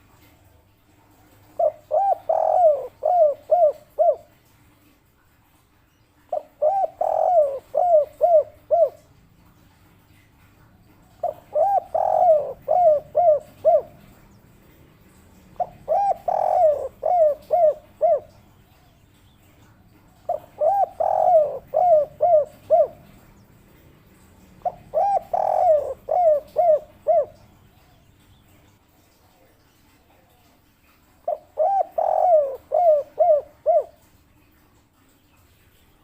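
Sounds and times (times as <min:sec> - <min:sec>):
dove cooing: 0:01.1 - 0:04.5, 0:06.3 - 0:09.5, 0:10.6 - 0:19.0, 0:19.6 - 0:28.2, 0:31.1 - 0:34.1.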